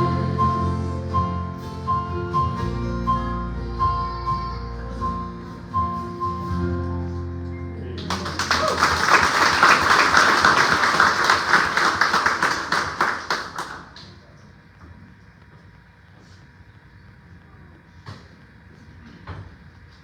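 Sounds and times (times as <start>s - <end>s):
congregation applauding: 8.0s - 14.3s.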